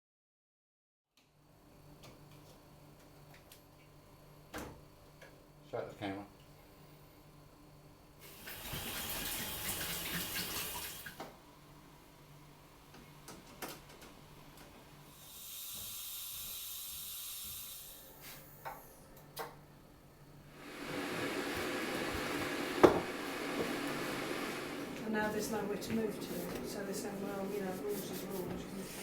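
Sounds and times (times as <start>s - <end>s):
water running from a tap: 8.2s - 11.2s.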